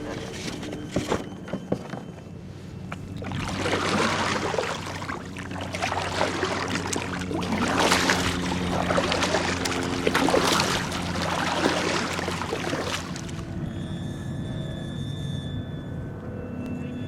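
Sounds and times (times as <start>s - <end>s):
low steady hum: 0.0s - 17.0s
water splashing against kayak hull: 2.9s - 13.5s.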